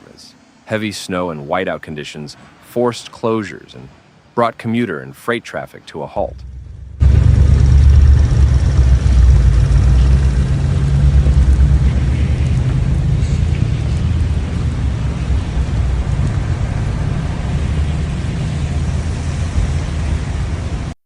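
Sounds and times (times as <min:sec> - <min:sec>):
blizzard wind buffeting microphone: 0:06.2 - 0:21.0.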